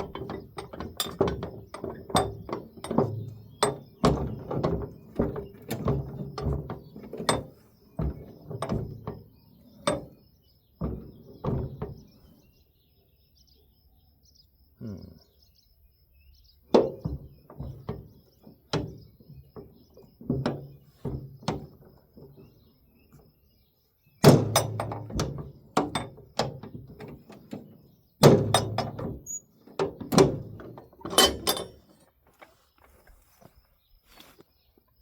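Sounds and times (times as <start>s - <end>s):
metal clanking and knocking: 0.0s - 12.4s, 16.6s - 23.1s, 24.2s - 32.0s.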